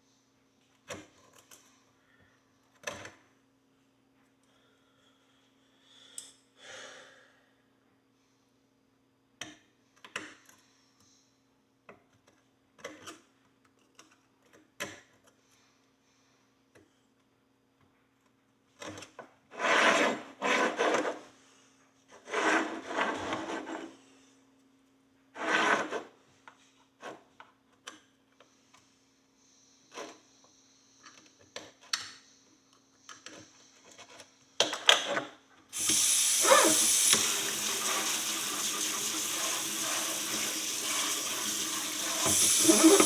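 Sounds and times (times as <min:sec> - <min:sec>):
hand tool scraping horseshoe: 0:35.8 - 0:37.3, 0:42.2 - 0:43.0.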